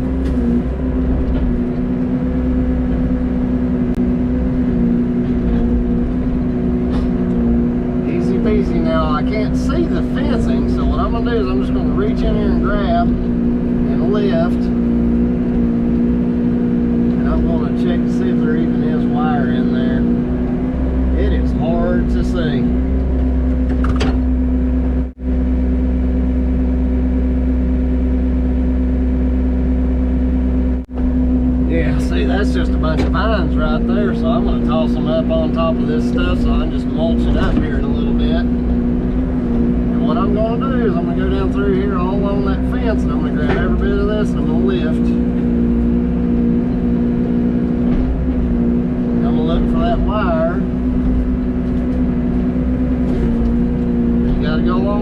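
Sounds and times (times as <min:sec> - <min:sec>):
excavator diesel engine droning: 0:00.0 - 0:55.0.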